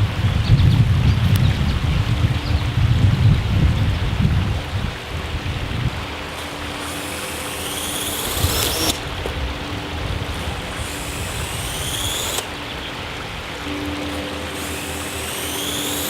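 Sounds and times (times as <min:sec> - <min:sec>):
drone motors whining: 0:06.2 - 0:16.0.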